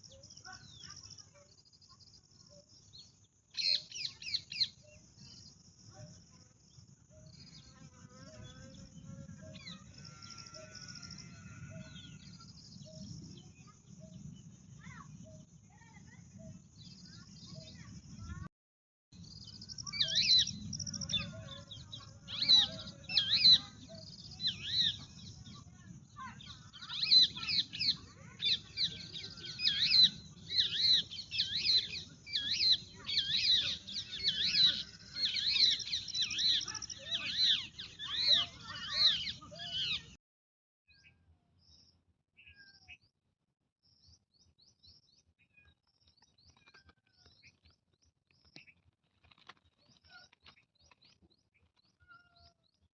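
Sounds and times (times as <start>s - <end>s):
birds chirping: 0.0s - 18.4s, 19.2s - 40.2s.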